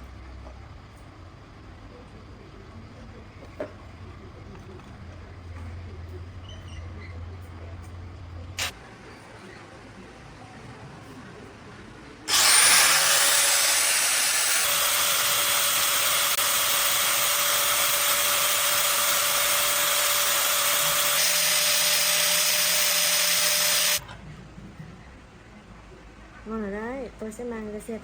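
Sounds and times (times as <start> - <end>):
electric power tool whining: 12.3 - 24.0.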